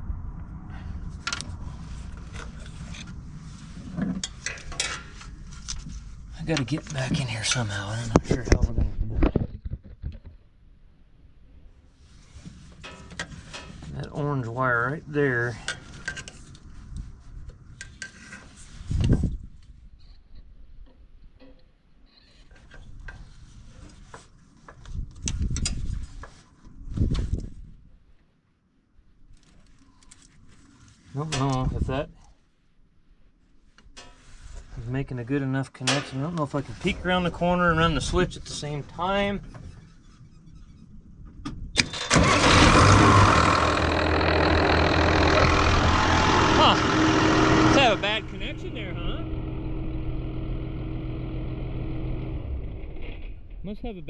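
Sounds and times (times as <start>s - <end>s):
low rumbling: 0.0s - 9.2s, 42.2s - 53.9s
diesel tractor engine idling: 42.2s - 52.8s.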